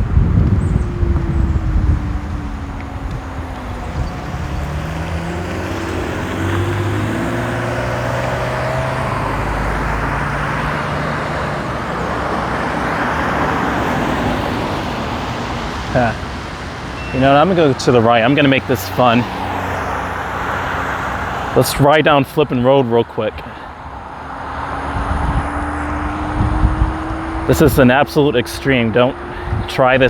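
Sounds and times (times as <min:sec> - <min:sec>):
wind buffeting microphone: 0:00.0 - 0:21.9, 0:23.8 - 0:30.0
cars and trucks passing: 0:00.0 - 0:30.0.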